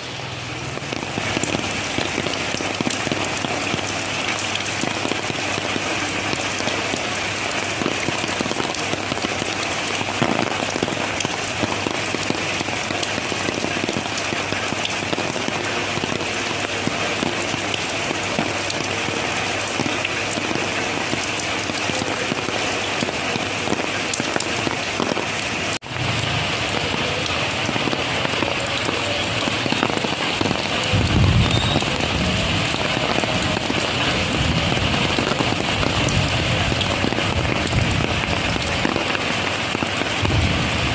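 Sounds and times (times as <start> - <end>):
rain falling: 0.0 - 40.9
low rumble: 30.9 - 33.5.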